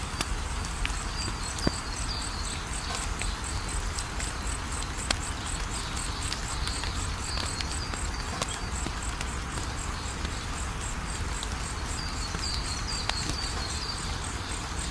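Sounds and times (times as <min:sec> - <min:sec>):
wood fire crackling and popping: 0:00.0 - 0:14.9
cricket chirping: 0:00.1 - 0:14.9.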